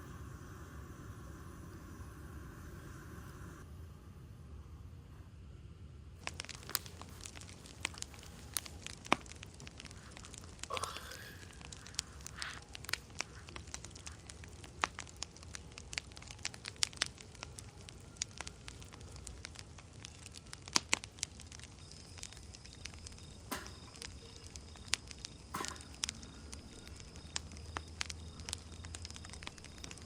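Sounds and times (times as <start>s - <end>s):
campfire crackling and popping: 6.2s - 30.0s.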